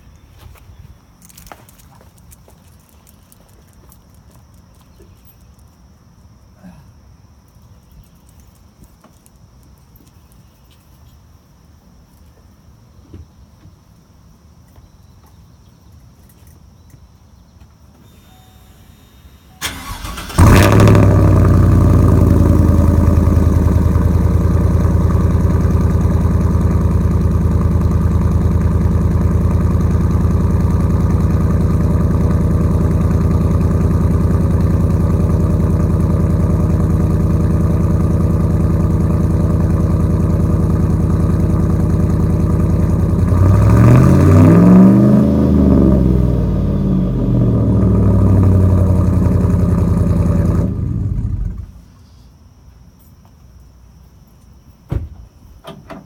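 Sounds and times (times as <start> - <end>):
engine revving: 19.6 - 26.6, 30.0 - 51.6
engine cranking and idling: 19.6 - 51.7.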